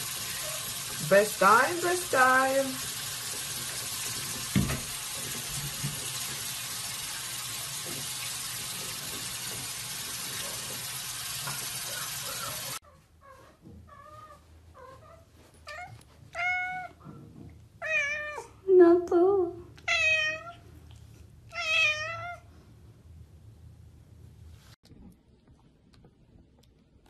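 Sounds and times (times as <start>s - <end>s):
tap water running into sink: 0.0s - 12.8s
cat meowing: 15.7s - 17.0s, 17.8s - 18.5s, 19.8s - 20.6s, 21.5s - 22.4s.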